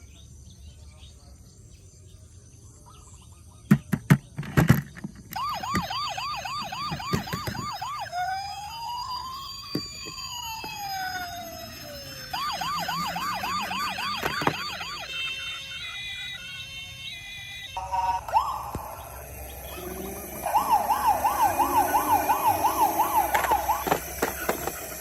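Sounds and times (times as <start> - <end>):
electronic toy siren: 5.3 - 25.0
electronic beeping tune: 5.4 - 16.4, 17.8 - 25.0.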